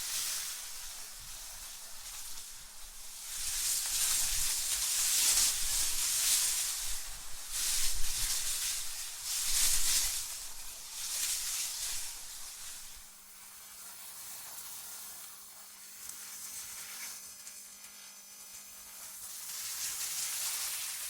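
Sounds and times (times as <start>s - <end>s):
wind gusts hissing: 0.0s - 13.1s.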